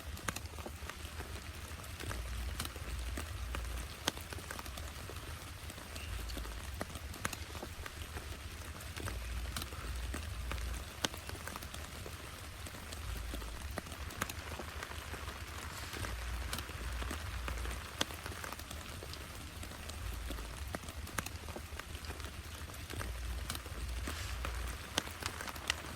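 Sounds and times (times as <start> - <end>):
heavy rain falling: 0.0 - 25.9
raindrops ticking on a surface: 0.0 - 25.9.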